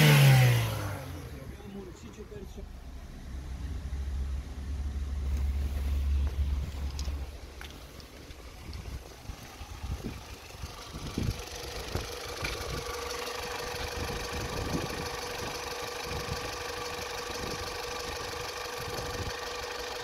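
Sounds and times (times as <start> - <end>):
car engine idling: 0.0 - 20.0
wind on microphone: 8.6 - 12.9.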